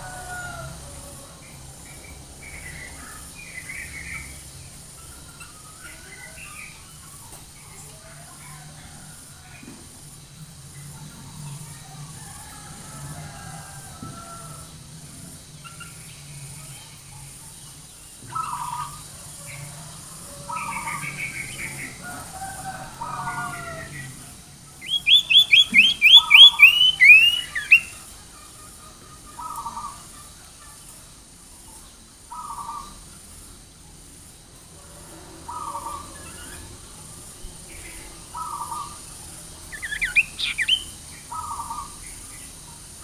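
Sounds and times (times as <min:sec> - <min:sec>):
songbird chirping: 0:00.0 - 0:33.2, 0:35.1 - 0:43.0
rapid sharp chirps: 0:24.6 - 0:28.0, 0:39.6 - 0:41.2.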